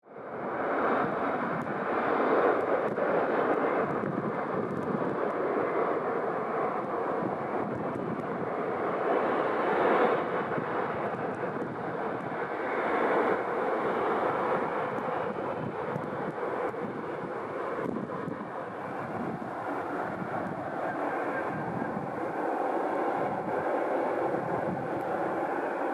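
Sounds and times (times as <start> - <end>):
jet engines rushing: 0.1 - 25.9.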